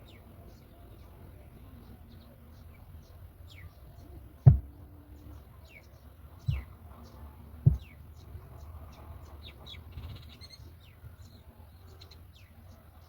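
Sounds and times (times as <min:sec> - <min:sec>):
loud low thumps: 0:04.4 - 0:04.8, 0:07.7 - 0:07.9.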